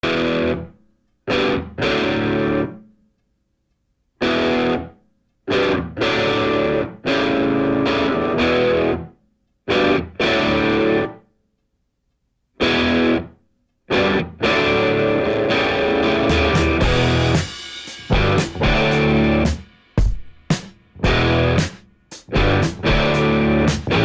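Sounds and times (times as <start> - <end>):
distorted electric guitar stabs: 14.0 - 19.7, 21.0 - 24.0.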